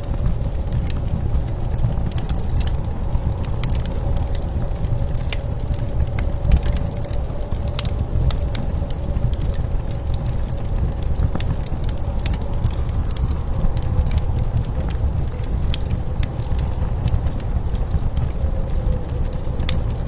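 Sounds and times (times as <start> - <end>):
blizzard wind rumbling: 0.0 - 20.0
wood fire crackling and popping: 0.0 - 20.0.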